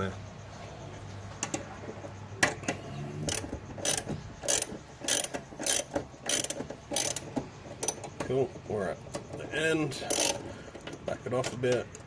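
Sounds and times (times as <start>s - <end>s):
ratchet wrench clicking: 3.3s - 8.1s, 10.1s - 10.5s.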